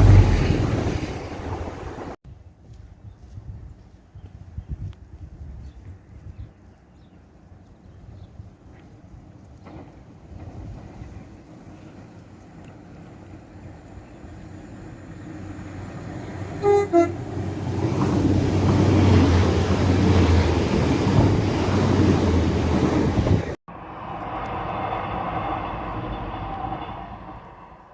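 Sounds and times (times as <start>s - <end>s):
train wheels and engine rushing: 0.0s - 2.2s, 8.5s - 27.9s
two-note train horn: 16.6s - 17.4s.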